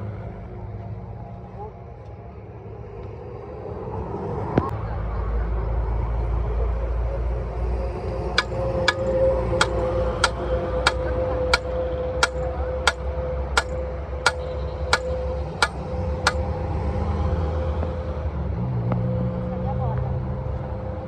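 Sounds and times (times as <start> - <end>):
low engine-like rumble: 0.0 - 21.0
hammer striking metal: 8.4 - 16.4.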